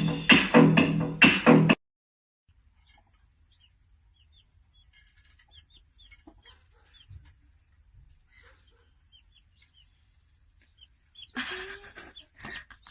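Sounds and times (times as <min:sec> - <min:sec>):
bird chirping: 0:02.6 - 0:12.9.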